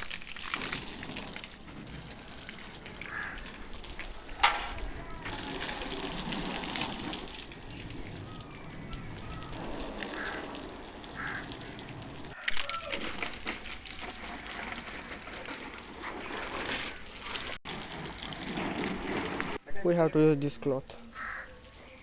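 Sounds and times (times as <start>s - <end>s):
hose water splashing on car: 0.0s - 19.6s
bird chirping: 3.4s - 5.4s, 7.6s - 10.3s, 11.6s - 12.4s.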